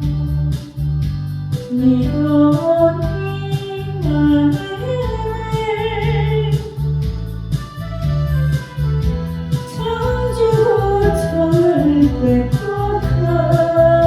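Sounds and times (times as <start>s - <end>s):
karaoke backing track: 0.0s - 14.0s
person singing: 1.7s - 7.0s, 9.6s - 14.0s.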